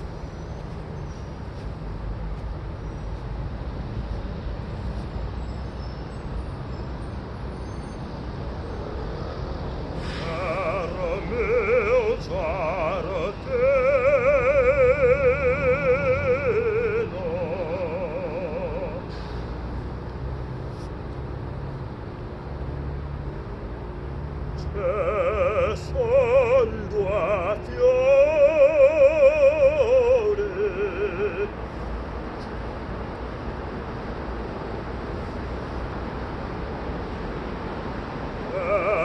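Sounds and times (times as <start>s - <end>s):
person singing vocal exercises: 10.0s - 19.3s, 24.6s - 31.6s, 38.4s - 39.0s.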